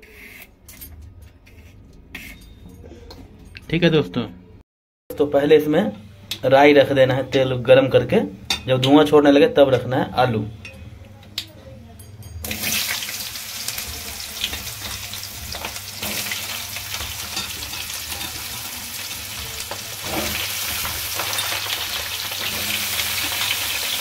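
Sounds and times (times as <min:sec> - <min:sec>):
potatoes sizzling in hot oil: 0:12.5 - 0:24.0.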